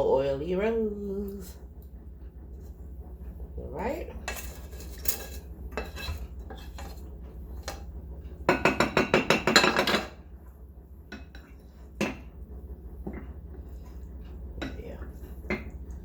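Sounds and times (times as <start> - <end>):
metal spoon scraping a pan: 4.2 - 7.8.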